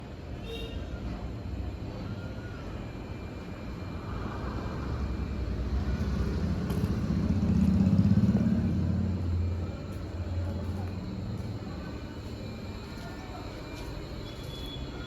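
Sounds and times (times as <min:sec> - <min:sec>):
low engine rumble: 0:02.8 - 0:15.0.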